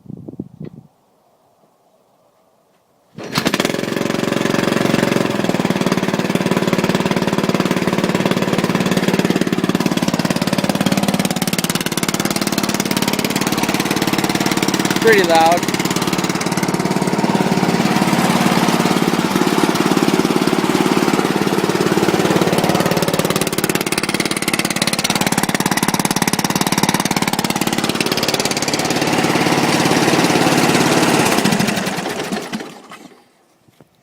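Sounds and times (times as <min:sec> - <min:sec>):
lawn tractor engine running: 0:03.2 - 0:33.4.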